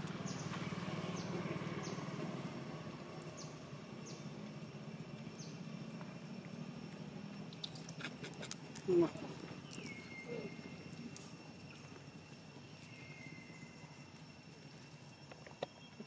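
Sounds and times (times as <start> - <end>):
small bird chirping: 0.0 - 2.2, 3.2 - 4.4, 5.3 - 6.0, 7.4 - 16.0
steady low hum: 0.0 - 16.0.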